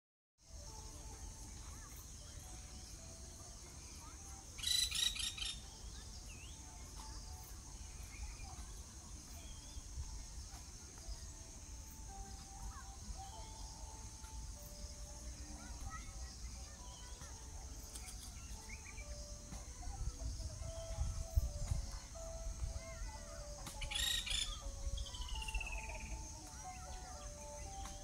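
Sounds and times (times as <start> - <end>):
insects shrilling: 0.5 - 28.0
faint bird chirps: 0.6 - 28.0
harsh rapid bird calls: 4.6 - 5.8, 23.7 - 26.1.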